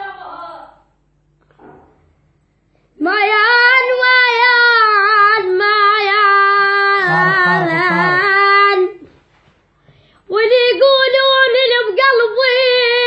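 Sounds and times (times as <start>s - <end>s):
high solo voice singing: 6.8s - 8.9s.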